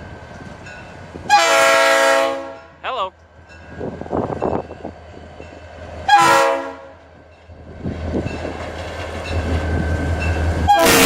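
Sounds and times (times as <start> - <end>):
low locomotive rumble: 0.0 - 11.0
locomotive air horn blast: 1.3 - 2.7, 6.1 - 6.9, 10.7 - 11.0.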